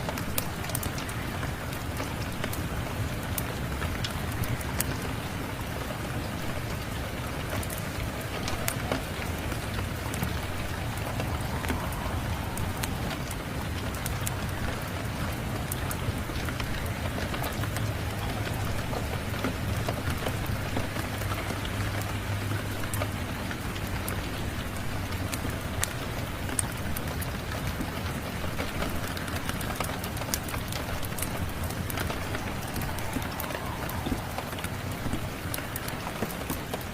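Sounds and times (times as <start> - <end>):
heavy rain falling: 0.0 - 36.9
wood fire crackling: 0.0 - 36.9
low even rumble: 7.3 - 19.7.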